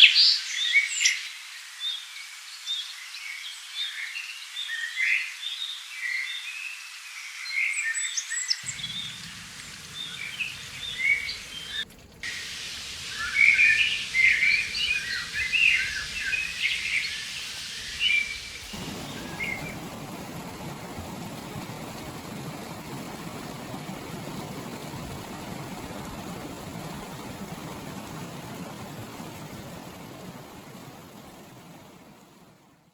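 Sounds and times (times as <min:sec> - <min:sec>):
small birds chirping: 0:08.5 - 0:20.3
river flowing: 0:08.6 - 0:32.8.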